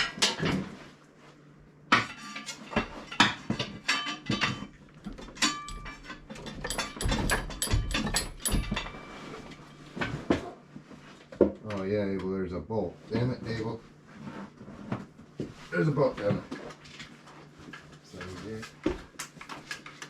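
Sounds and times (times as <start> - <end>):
metal tools clattering: 2.0 - 10.2
ringing metal strikes: 5.4 - 10.0.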